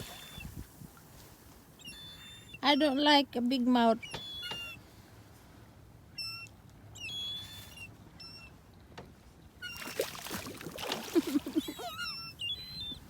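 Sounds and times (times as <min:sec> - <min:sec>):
seagulls calling: 0:01.8 - 0:03.1, 0:04.0 - 0:04.8, 0:11.1 - 0:13.0
water splashing: 0:09.7 - 0:12.0.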